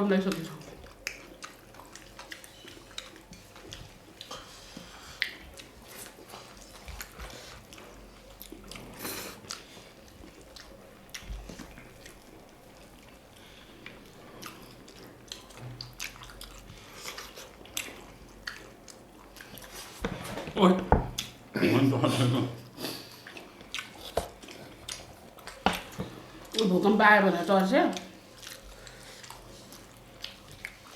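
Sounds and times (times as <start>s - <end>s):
chewing and mouth noises: 0.2s - 20.0s, 22.6s - 26.7s, 27.6s - 30.9s.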